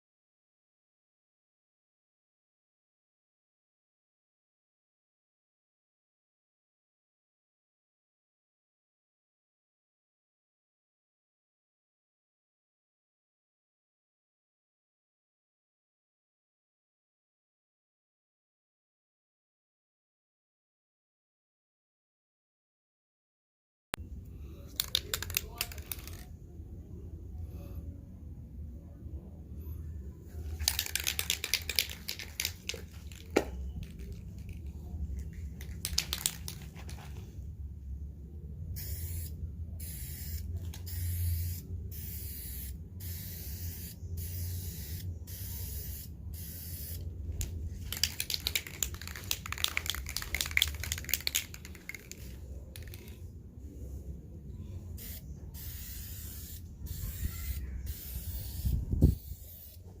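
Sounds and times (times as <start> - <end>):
steady low hum: 24.0 - 60.0
aerosol can spraying: 38.8 - 47.0, 55.0 - 59.8.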